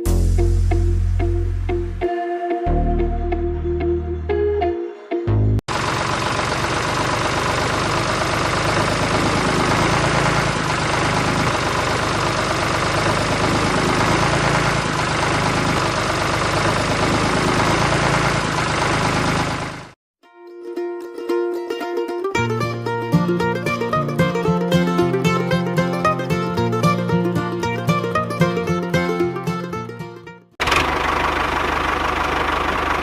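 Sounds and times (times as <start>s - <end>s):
small engine running: 5.7s - 20.0s, 30.6s - 33.0s.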